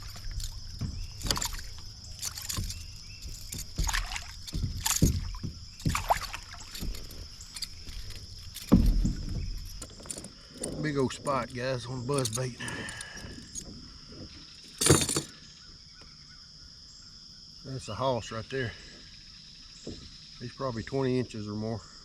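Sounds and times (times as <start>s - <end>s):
gear knocking on plastic kayak hull: 0.0s - 10.9s
insects droning: 0.0s - 22.0s.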